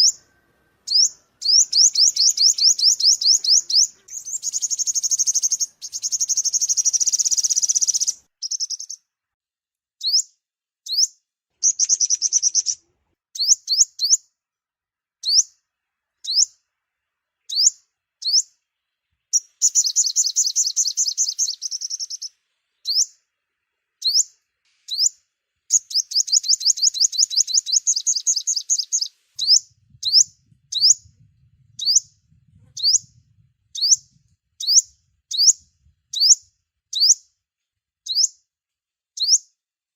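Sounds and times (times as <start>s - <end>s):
faint low hum: 0.0s - 6.6s, 29.1s - 35.1s
rapid high bird trills: 0.0s - 9.0s, 24.9s - 31.0s.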